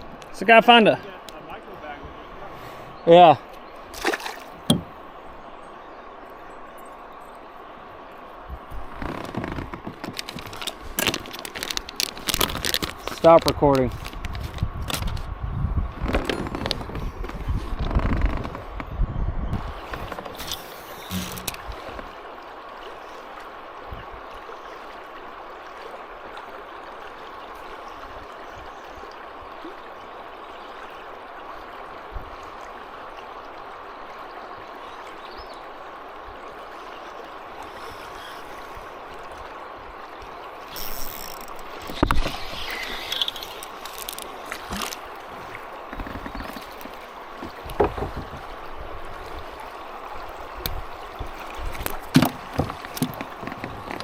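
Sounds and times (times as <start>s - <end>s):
river current rushing: 0.0s - 14.8s, 19.6s - 54.0s
knocks and rattles: 45.9s - 48.5s.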